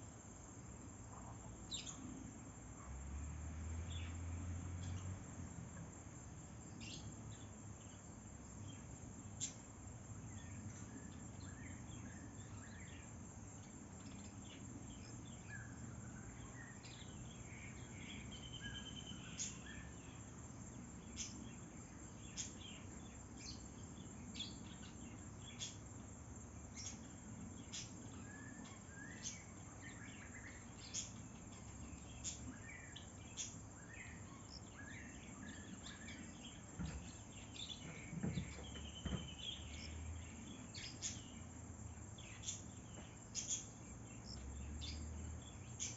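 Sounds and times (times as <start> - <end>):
bird chirps: 1.7 - 2.2, 6.7 - 8.0, 10.2 - 26.0, 26.7 - 45.9.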